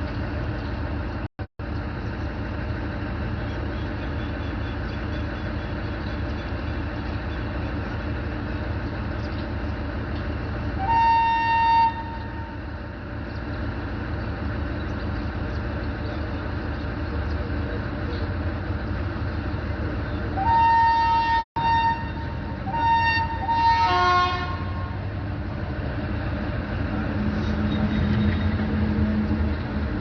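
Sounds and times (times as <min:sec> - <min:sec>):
locomotive low rumble: 0:00.0 - 0:30.0
locomotive horn blast: 0:10.8 - 0:12.7, 0:20.4 - 0:25.1.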